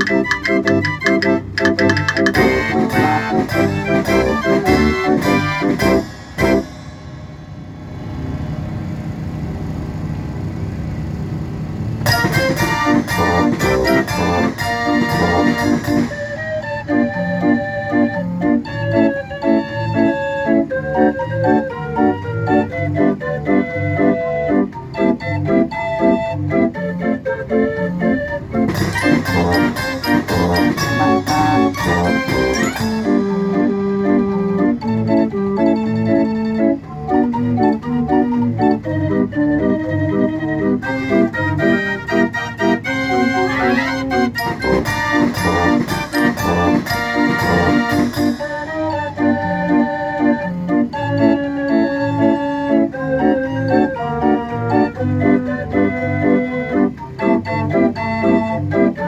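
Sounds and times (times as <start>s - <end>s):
steady drum beat: 0.0s - 6.9s, 12.1s - 16.1s, 28.7s - 33.6s, 44.4s - 48.6s
mechanical fairground organ tune: 0.0s - 59.0s.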